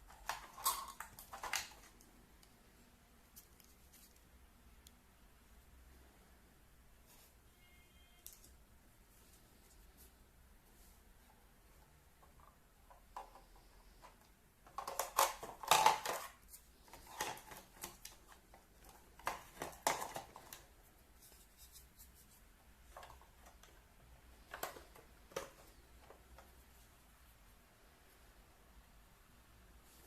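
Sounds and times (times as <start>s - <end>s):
unboxing clicks and rustles: 0.0s - 2.6s, 12.1s - 26.7s.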